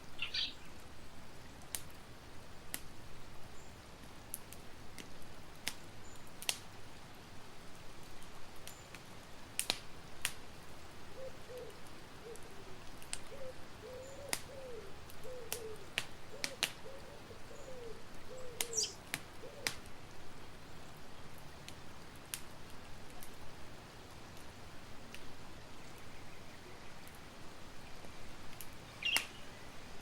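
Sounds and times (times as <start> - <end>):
bird calling low notes: 0.1 - 0.7, 11.2 - 19.7, 28.9 - 29.8
campfire crackling and popping: 0.2 - 3.1, 3.9 - 30.0.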